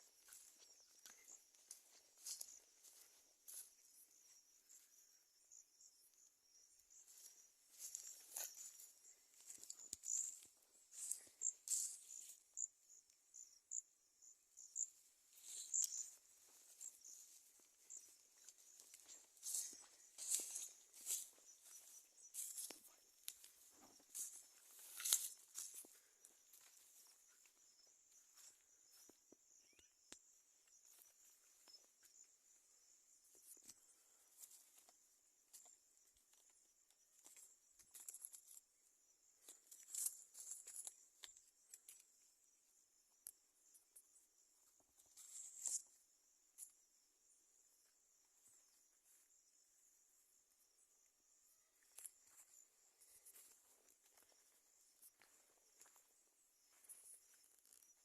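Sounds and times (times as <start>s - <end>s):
insects chirping: 0.0s - 58.0s
small clicks and ticks: 36.4s - 38.7s, 39.5s - 42.2s.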